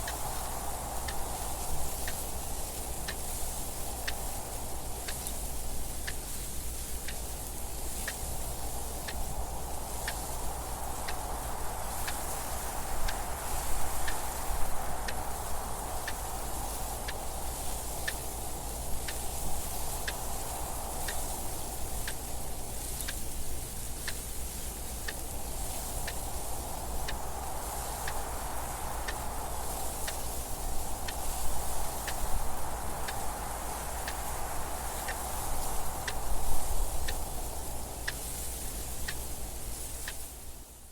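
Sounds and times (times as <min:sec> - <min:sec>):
rushing wind: 0:00.0 - 0:40.9
clock ticking: 0:09.9 - 0:23.4, 0:25.0 - 0:40.4.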